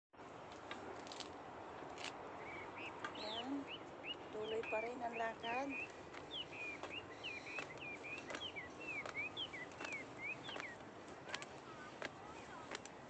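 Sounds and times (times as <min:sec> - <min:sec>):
songbird whistling: 0:02.4 - 0:12.6.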